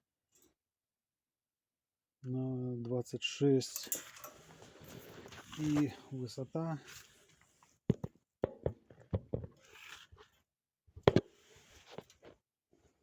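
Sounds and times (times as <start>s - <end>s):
faint rustle: 4.0s - 6.2s.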